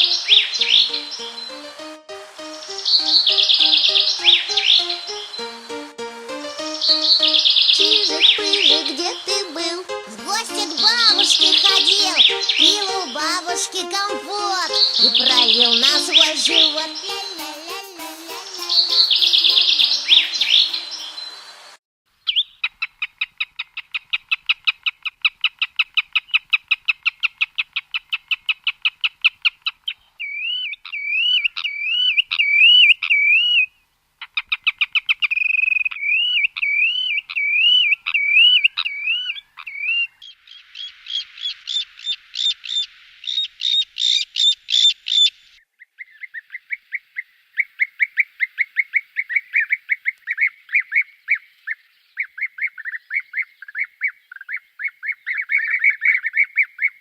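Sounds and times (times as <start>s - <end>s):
bird song: 0.0s - 1.8s, 2.4s - 5.7s, 11.3s - 13.2s, 14.6s - 17.6s, 18.5s - 21.6s, 27.0s - 57.0s.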